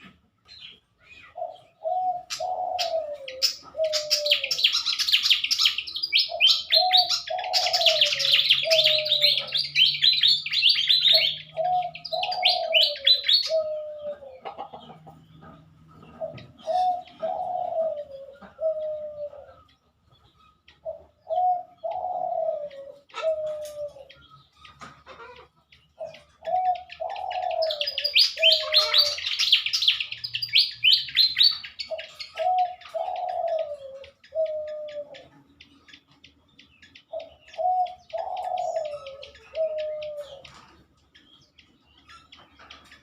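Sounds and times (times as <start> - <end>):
dove cooing: 0.0 - 36.2, 36.9 - 41.2
high squeaky bird chirping: 27.6 - 33.0.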